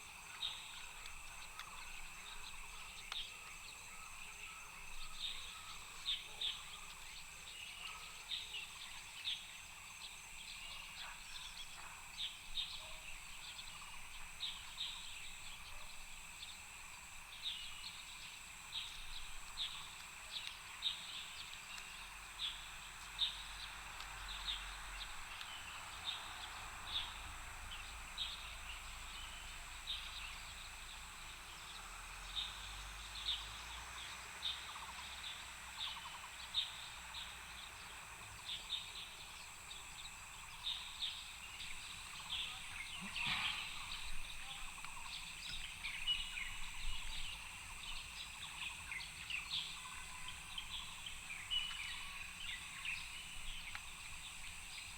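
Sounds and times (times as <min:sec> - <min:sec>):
steady high-pitched hiss: 0:00.0 - 0:54.9
birds chirping: 0:17.2 - 0:54.9.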